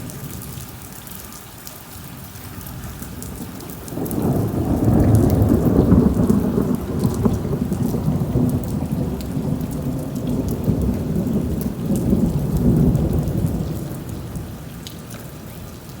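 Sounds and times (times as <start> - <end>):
rain: 0.0 - 16.0
raindrop ticks: 0.0 - 16.0
rolling thunder: 2.6 - 14.9.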